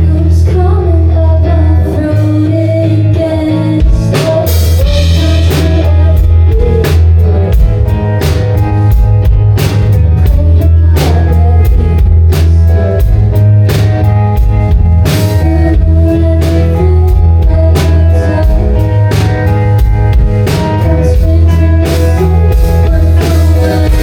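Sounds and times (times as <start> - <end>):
live rock band playing: 0.0 - 24.0
drum kit beating: 3.8 - 24.0.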